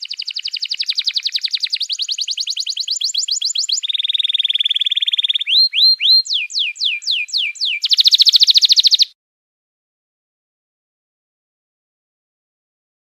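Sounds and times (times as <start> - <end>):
songbird singing: 0.0 - 9.2.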